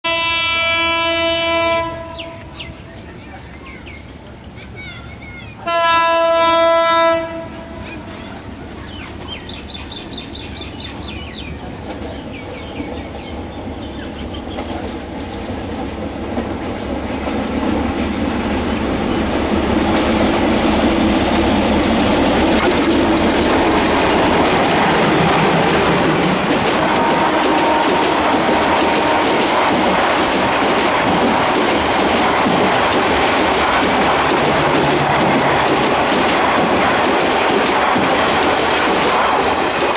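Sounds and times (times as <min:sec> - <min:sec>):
train rumble: 0:00.1 - 0:39.9
wheels clattering over rail joints: 0:22.4 - 0:39.9.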